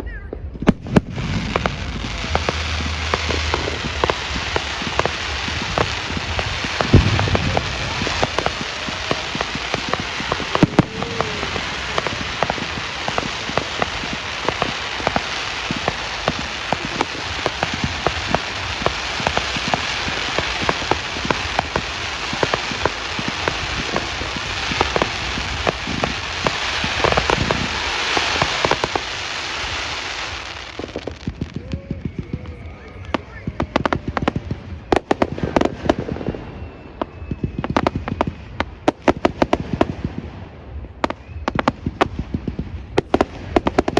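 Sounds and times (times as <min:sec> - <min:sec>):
crackling fireworks: 0:00.0 - 0:43.9.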